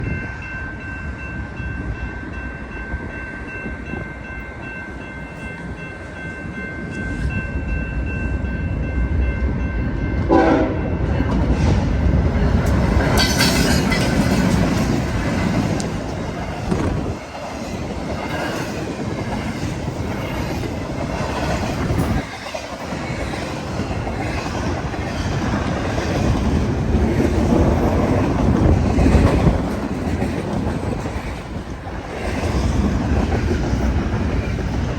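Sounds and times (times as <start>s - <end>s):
freight train rumbling past: 0.0s - 34.9s
locomotive horn: 10.3s - 11.0s
wheels clicking over rail joints: 12.5s - 34.9s.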